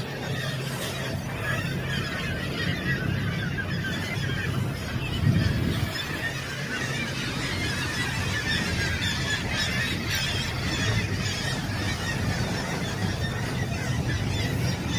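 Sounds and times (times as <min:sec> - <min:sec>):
seabirds squealing and honking: 0:00.0 - 0:14.9.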